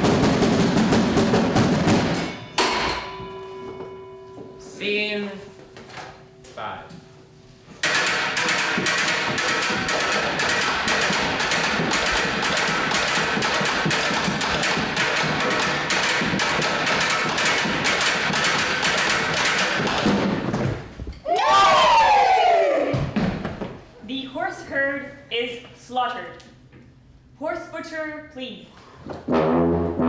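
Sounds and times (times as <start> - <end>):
quick percussion strikes: 7.8 - 20.5.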